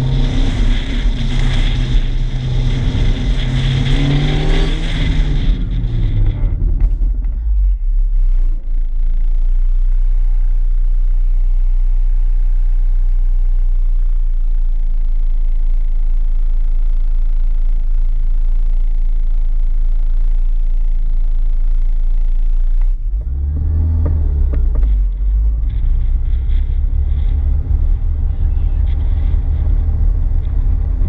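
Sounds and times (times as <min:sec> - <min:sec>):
car engine rumbling and revving: 0:00.0 - 0:31.0.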